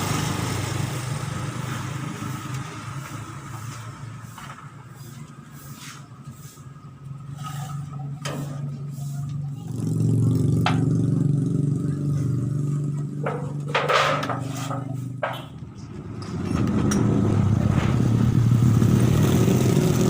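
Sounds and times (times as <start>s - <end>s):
sharp knocks and scrapes: 3.6s - 9.5s, 12.2s - 18.0s
small engine revving: 16.6s - 20.0s.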